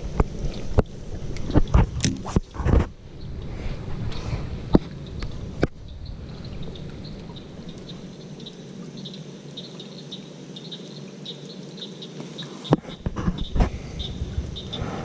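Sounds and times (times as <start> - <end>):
low outdoor rumble: 0.0 - 10.2, 12.8 - 15.0
chorus of high chirps: 5.8 - 15.0.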